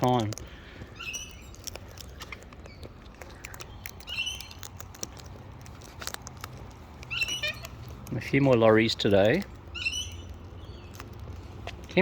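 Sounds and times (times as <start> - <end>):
beaks pecking at seed: 0.0 - 12.0
parrot chattering call: 7.1 - 7.8.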